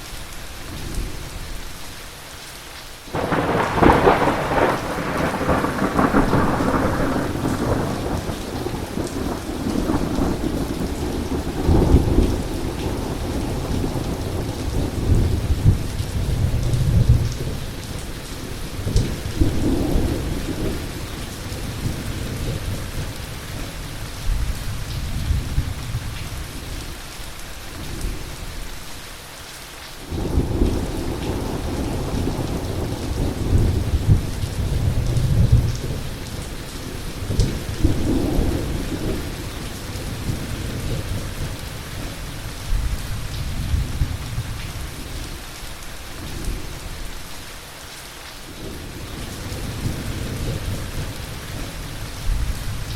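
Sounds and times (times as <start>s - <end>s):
heavy rain falling: 0.0s - 52.9s
rolling thunder: 3.1s - 23.6s, 30.1s - 45.3s, 48.6s - 52.9s.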